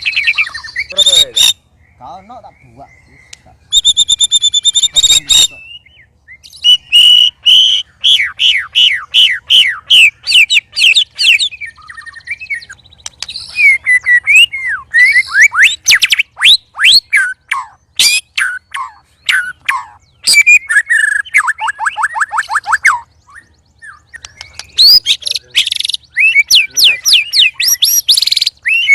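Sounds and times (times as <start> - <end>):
songbirds singing whistles: 0.0 - 28.9.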